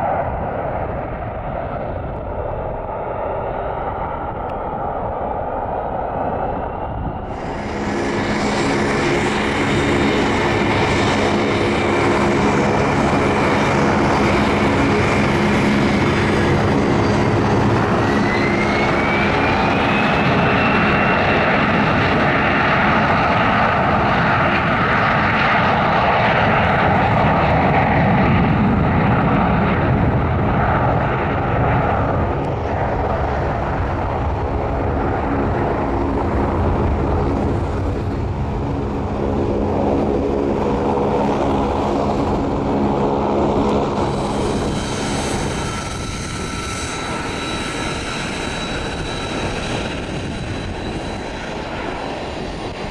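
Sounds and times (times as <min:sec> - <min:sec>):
aircraft engines running: 0:00.0 - 0:52.9
engine roar: 0:06.2 - 0:52.9
high whine: 0:42.0 - 0:52.9.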